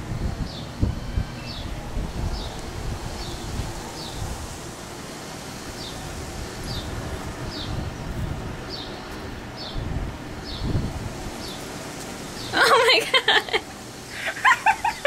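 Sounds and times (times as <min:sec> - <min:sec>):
wind rumble on microphone: 0:00.0 - 0:05.0, 0:05.7 - 0:11.8.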